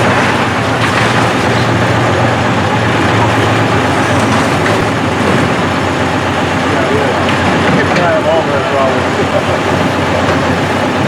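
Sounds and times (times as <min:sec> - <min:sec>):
heavy machinery engine drone: 0:00.0 - 0:11.0.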